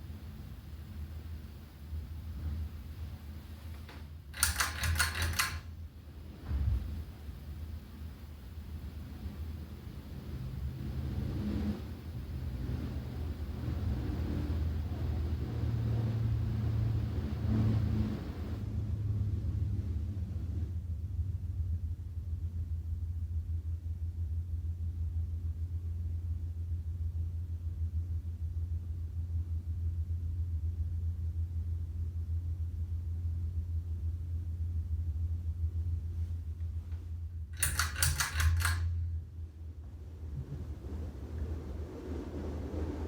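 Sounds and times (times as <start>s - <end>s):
ceiling fan motor hum: 0.0s - 43.0s
pull-chain switch click: 3.8s - 5.7s, 37.6s - 39.0s
chain rattling: 4.4s - 5.7s, 37.6s - 38.9s.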